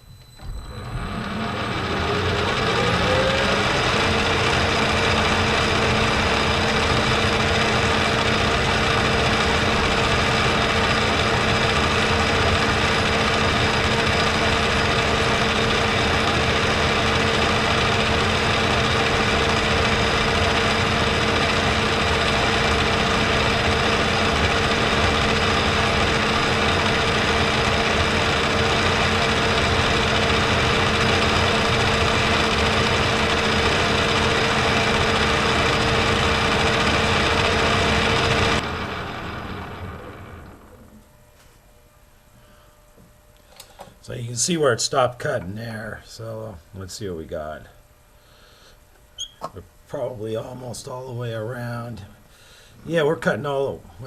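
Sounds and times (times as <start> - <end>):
metal lathe running: 0.4 - 41.0.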